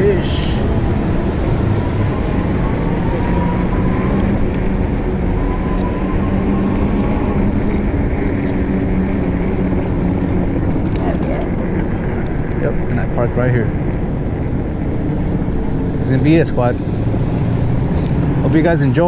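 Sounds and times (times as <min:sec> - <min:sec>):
wind rush on microphone: 0:00.0 - 0:19.0.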